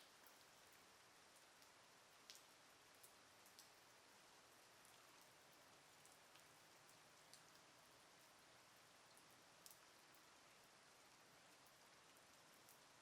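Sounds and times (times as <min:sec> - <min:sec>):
soft hiss of rainfall: 0:00.0 - 0:13.0
single raindrops ticking: 0:01.6 - 0:03.8, 0:09.1 - 0:10.3.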